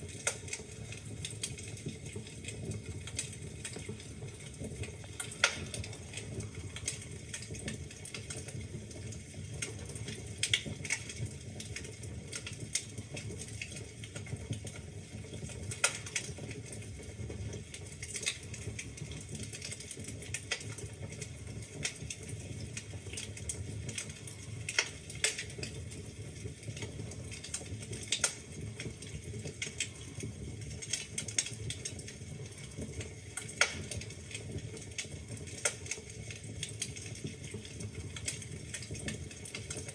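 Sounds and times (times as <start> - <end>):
burning logs snapping and popping: 0.0 - 39.9
flames rumbling: 0.0 - 39.9.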